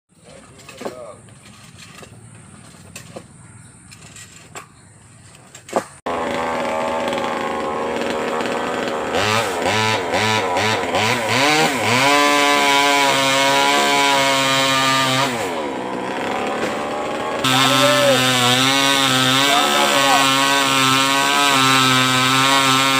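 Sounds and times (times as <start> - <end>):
chainsaw engine revving: 5.8 - 22.9.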